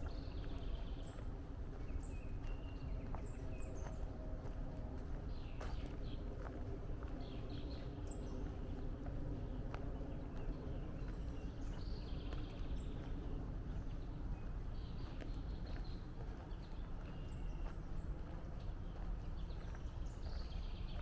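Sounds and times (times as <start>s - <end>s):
footsteps on trail: 0.0s - 21.0s
songbirds chirping and trilling: 0.0s - 21.0s.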